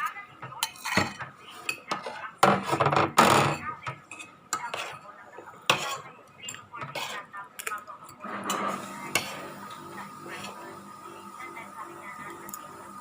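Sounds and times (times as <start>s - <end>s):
cutlery clinking and scraping on plate: 0.0s - 9.5s.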